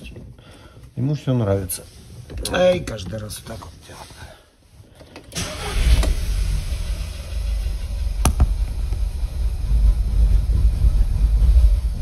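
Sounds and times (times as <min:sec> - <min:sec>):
car engine running rough: 0:05.8 - 0:12.0
sharp crack: 0:07.4 - 0:09.1.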